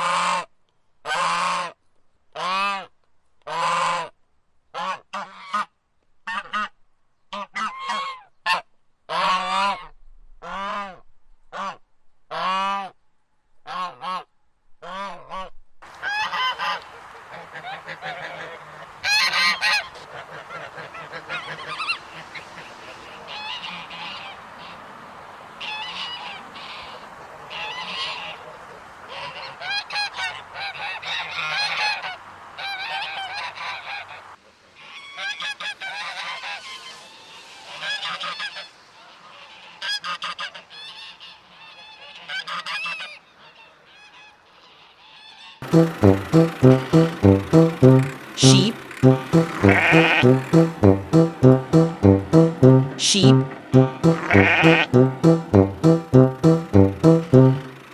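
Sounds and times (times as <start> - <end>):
geese honking: 45.6 - 52.6, 53.5 - 56.4.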